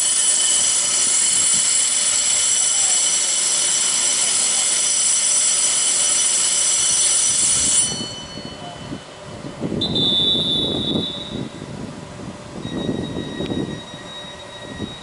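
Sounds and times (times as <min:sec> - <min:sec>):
electric train high-pitched whine: 0:00.0 - 0:15.0.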